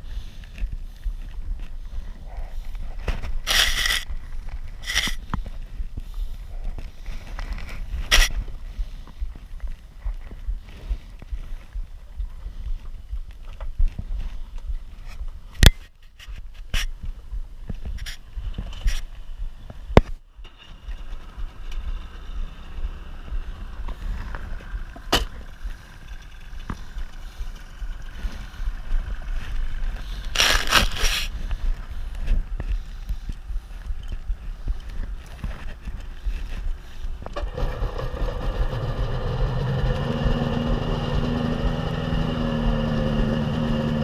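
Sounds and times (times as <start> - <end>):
low rumble of wind and water: 0.0 - 44.0
jet ski engine idling: 21.1 - 30.4, 36.8 - 44.0.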